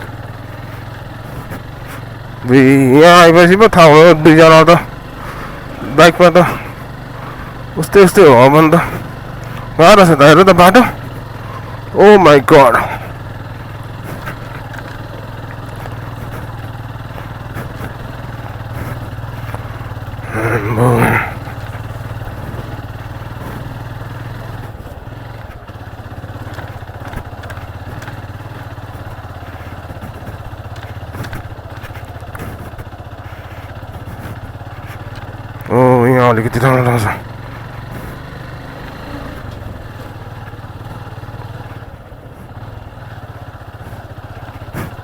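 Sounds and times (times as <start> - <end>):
motorcycle engine running: 0.0 - 45.0
loud voice: 5.8 - 6.6, 11.9 - 13.1, 20.2 - 21.4, 35.7 - 37.2.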